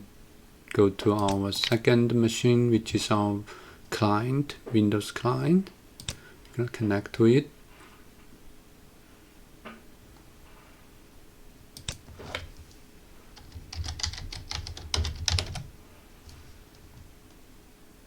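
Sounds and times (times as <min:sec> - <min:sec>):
keyboard typing: 0:11.8 - 0:12.5, 0:13.4 - 0:15.7.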